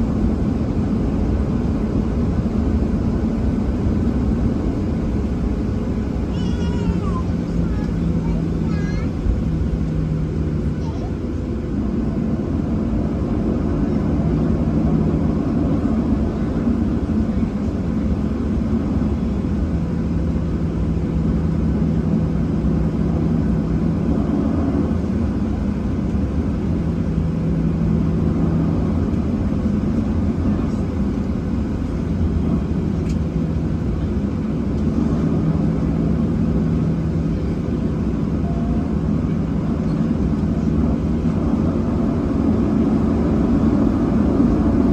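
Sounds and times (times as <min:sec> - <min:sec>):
jet engines idling in cabin: 0:00.0 - 0:44.9.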